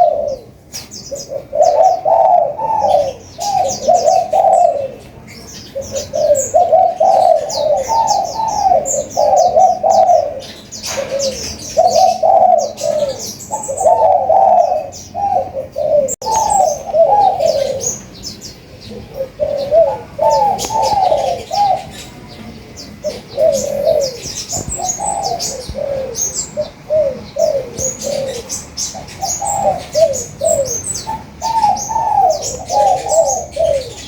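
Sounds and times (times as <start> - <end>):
doves cooing: 0.0 - 34.0
small birds chirping rapidly: 0.0 - 34.0.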